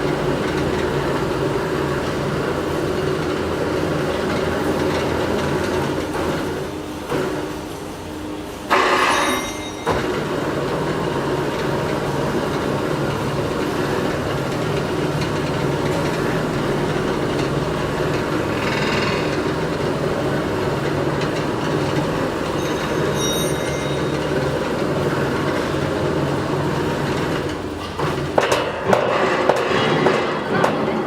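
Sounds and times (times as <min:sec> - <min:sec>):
factory machinery clatter: 0:00.0 - 0:31.0
short high tones: 0:08.7 - 0:10.4, 0:22.5 - 0:24.7.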